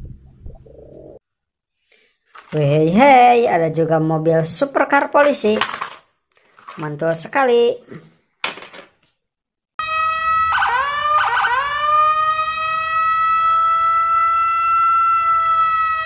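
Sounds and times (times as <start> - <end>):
toy police siren: 9.8 - 16.0.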